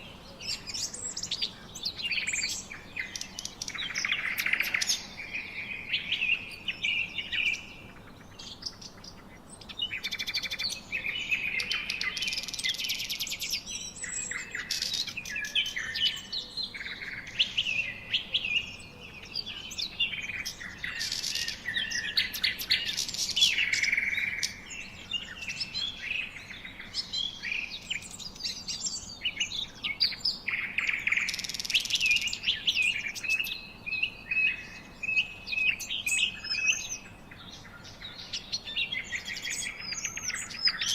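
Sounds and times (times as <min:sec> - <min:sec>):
birds chirping and singing: 0:00.0 - 0:40.9.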